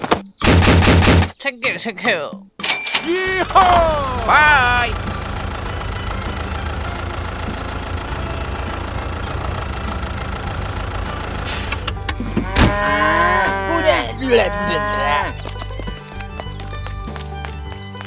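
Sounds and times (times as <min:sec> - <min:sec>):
tractor engine running: 0:03.2 - 0:13.7
short hiss: 0:11.5 - 0:11.9
cows mooing: 0:12.2 - 0:15.4.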